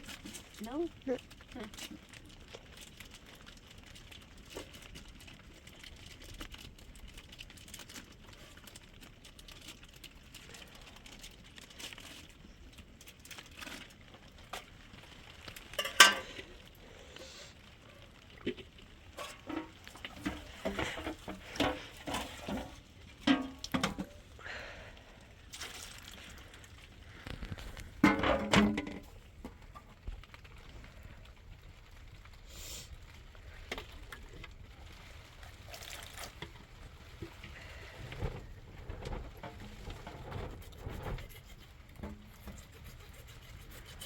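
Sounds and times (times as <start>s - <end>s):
pots and utensils clinking: 15.6s - 16.6s, 19.2s - 24.2s, 28.0s - 29.2s.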